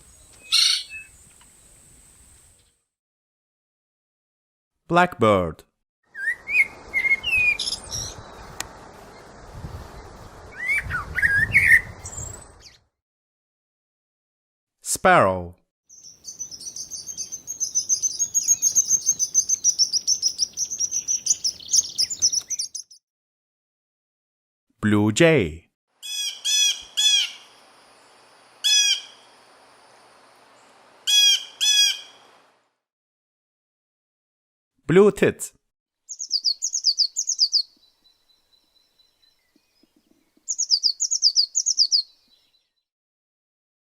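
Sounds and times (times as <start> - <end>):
steady outdoor hiss: 0.0 - 2.7, 6.4 - 12.6, 16.0 - 22.7, 26.0 - 32.7
blackbird singing: 0.1 - 1.2, 6.1 - 9.3, 10.5 - 12.8, 15.9 - 23.0, 36.1 - 42.8
blue jay calls: 0.4 - 1.1, 6.1 - 8.5, 15.9 - 23.0, 26.0 - 27.6, 28.6 - 29.4, 31.0 - 32.4, 36.1 - 37.8, 40.5 - 42.2.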